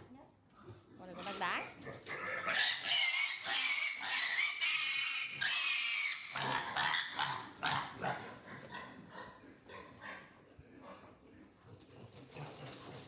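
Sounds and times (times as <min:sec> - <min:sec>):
animal squealing: 0:02.1 - 0:08.0.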